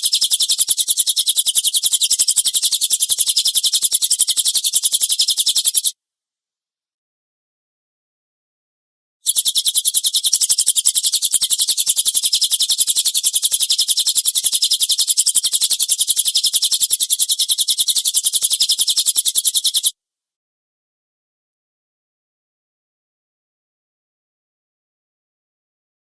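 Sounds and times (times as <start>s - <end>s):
rapid high-pitched bird call: 0.0s - 6.0s, 9.2s - 20.0s.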